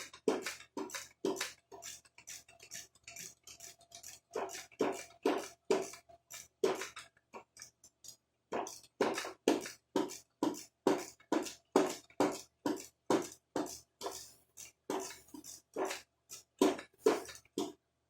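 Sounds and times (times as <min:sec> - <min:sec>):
hand tool back-and-forth strokes: 0:00.0 - 0:17.8.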